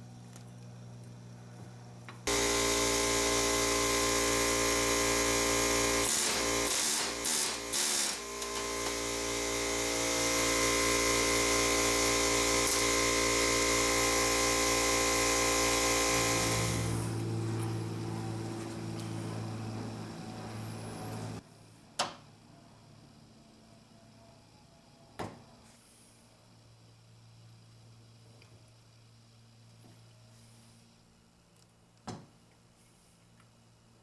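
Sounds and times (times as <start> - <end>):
power tool motor running: 2.2 - 21.4.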